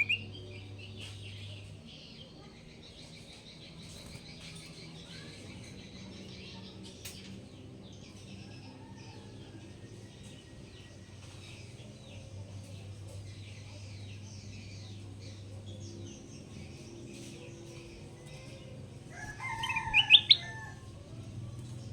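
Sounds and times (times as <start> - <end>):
bird chirping: 0.0 - 1.6, 19.1 - 20.7.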